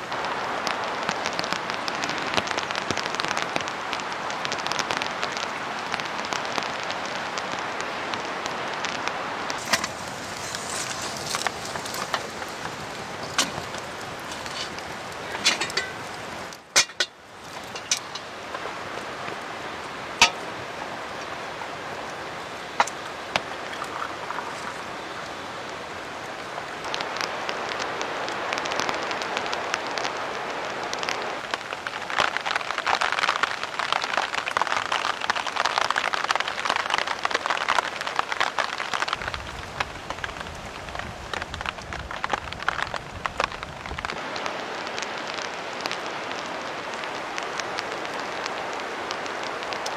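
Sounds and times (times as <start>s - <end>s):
rain falling: 0.0s - 49.9s.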